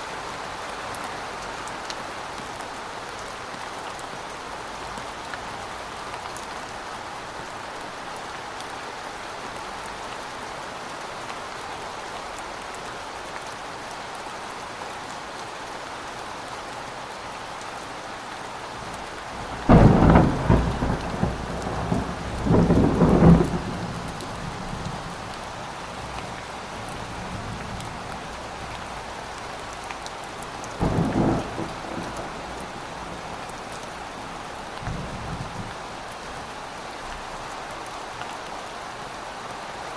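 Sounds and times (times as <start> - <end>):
steady rain: 0.0 - 39.9
thunder crack and rumble: 19.4 - 25.3, 30.8 - 33.8.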